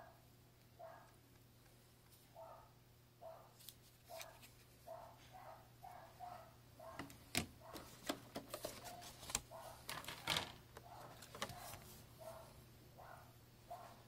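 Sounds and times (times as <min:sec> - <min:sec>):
plastic packaging clicks and clatter: 0:07.0 - 0:11.9.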